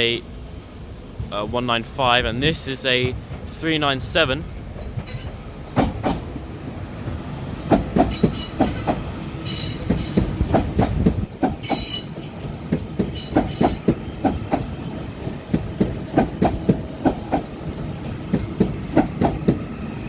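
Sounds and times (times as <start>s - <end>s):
train wheels clattering over joints: 1.1s - 19.8s
wheel squeals: 11.6s - 12.4s.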